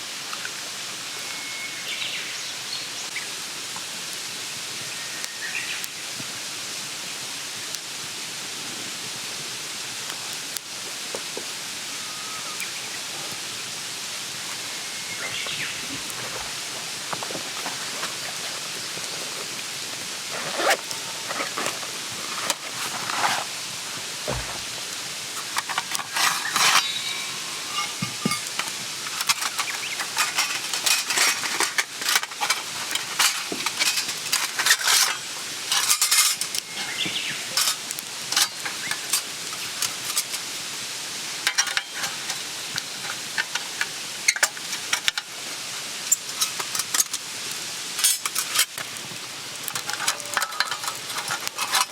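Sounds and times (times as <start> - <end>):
steady hiss: 0.0 - 51.9
pots and utensils clattering: 15.1 - 19.6, 20.3 - 23.5, 24.3 - 24.7, 25.4 - 40.5, 41.4 - 45.3, 46.1 - 47.3, 48.0 - 48.9, 49.6 - 51.9.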